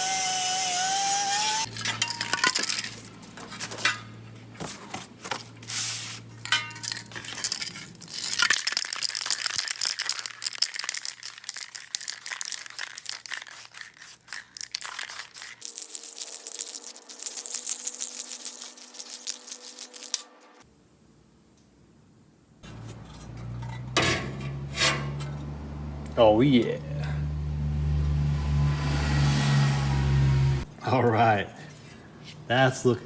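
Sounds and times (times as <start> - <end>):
electric drill running: 0.0 - 1.7
metal clinks and scrapes: 6.4 - 12.5, 22.6 - 25.5.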